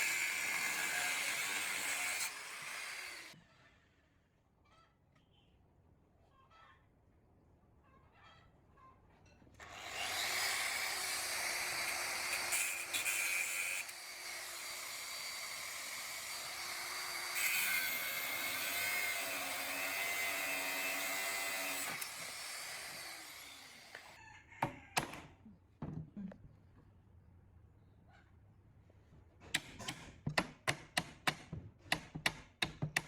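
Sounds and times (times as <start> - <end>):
power tool whining: 0.0 - 3.4, 9.6 - 24.2.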